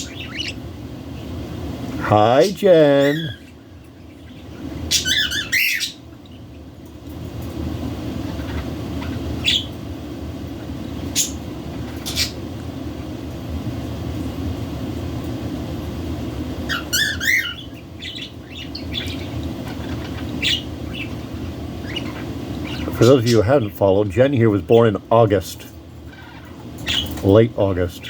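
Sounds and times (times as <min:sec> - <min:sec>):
budgerigars chirping and squawking: 0:00.0 - 0:00.6, 0:02.2 - 0:06.5, 0:08.2 - 0:09.8, 0:10.9 - 0:12.4, 0:16.6 - 0:23.7, 0:25.6 - 0:27.4.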